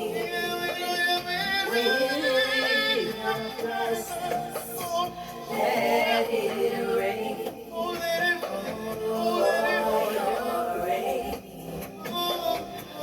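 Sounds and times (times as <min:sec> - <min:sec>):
sustained gospel accompaniment: 0:00.0 - 0:13.0.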